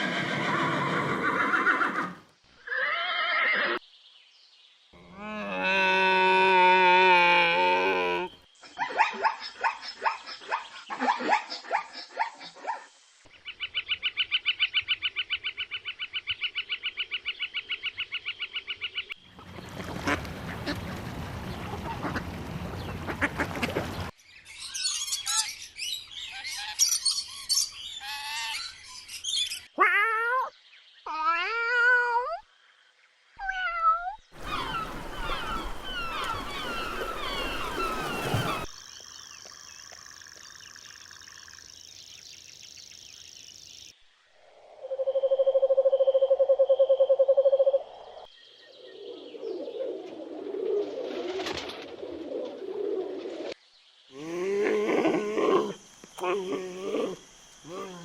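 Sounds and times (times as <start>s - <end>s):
gliding calls: 34.4s - 38.7s.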